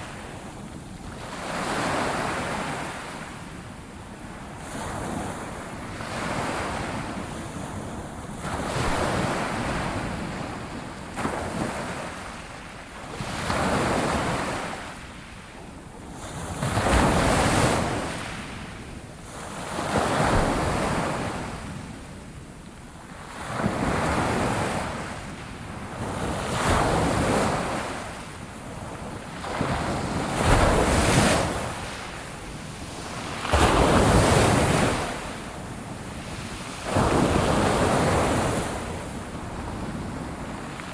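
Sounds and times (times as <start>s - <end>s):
ocean waves breaking on shore: 4.4s - 15.4s, 23.1s - 40.9s.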